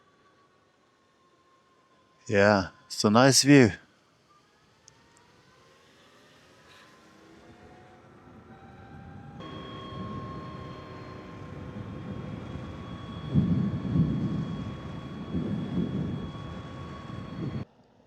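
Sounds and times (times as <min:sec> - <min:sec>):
electric motor high whine: 0:07.2 - 0:17.6
low wind rumble: 0:09.1 - 0:17.6.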